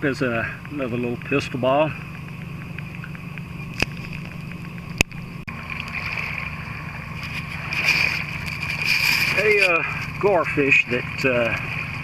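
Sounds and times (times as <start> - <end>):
cicada chorus drone: 0.0 - 12.0
low rumble: 0.0 - 12.0
sharp click: 0.2 - 5.3.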